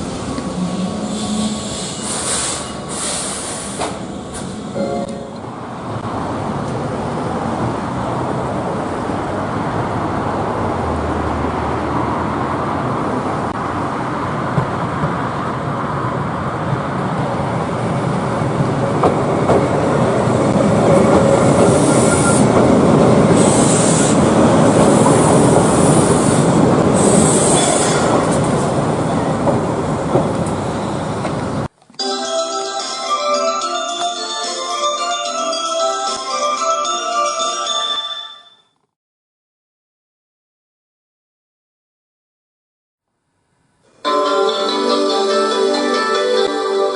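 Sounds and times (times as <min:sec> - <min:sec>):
train running on track: 0:00.0 - 0:31.7
wheel squeal: 0:00.6 - 0:03.9, 0:21.4 - 0:22.6.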